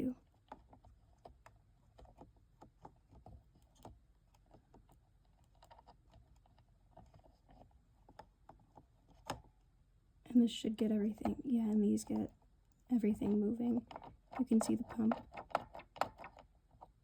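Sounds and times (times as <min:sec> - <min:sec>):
fingers clicking and tapping plastic: 0:00.0 - 0:07.3, 0:11.1 - 0:12.4, 0:13.1 - 0:17.0.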